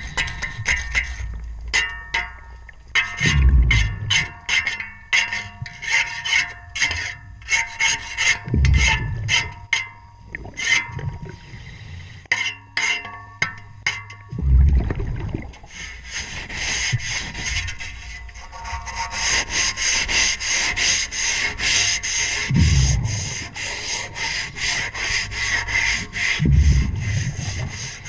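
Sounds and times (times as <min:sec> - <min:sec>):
ringing scraping on propeller underwater: 0:00.0 - 0:15.0, 0:15.6 - 0:28.0
regulator exhaust bubbling: 0:03.2 - 0:04.4, 0:08.5 - 0:09.6, 0:14.3 - 0:15.7, 0:22.5 - 0:23.4, 0:26.4 - 0:27.8.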